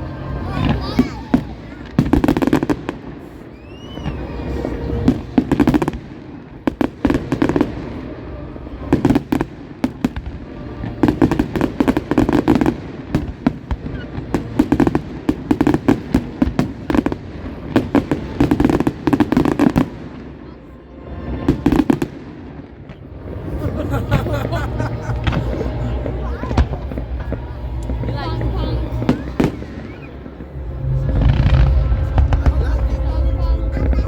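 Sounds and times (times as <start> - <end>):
fireworks bangs and crackling: 0.0 - 20.6, 21.2 - 34.0
firework whistle: 0.6 - 6.0, 26.3 - 33.0.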